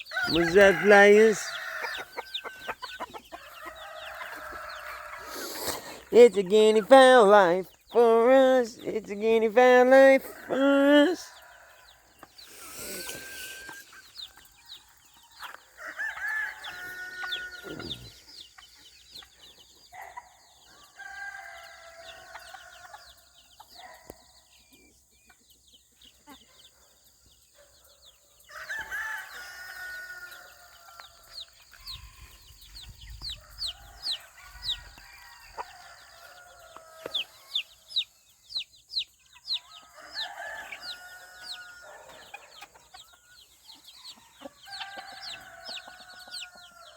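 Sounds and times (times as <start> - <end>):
roosters crowing: 0.0 - 7.6, 9.7 - 18.8, 19.4 - 24.0, 27.7 - 38.3, 39.4 - 46.9
hens clucking: 0.0 - 20.3
small birds chirping: 0.0 - 46.9.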